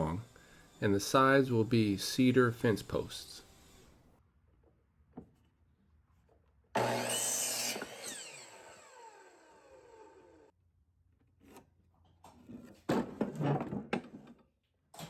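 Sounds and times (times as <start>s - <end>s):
saw blade winding down whine: 0.0s - 3.9s, 6.8s - 10.5s
electric saw cutting wood: 0.0s - 4.0s, 6.8s - 10.5s.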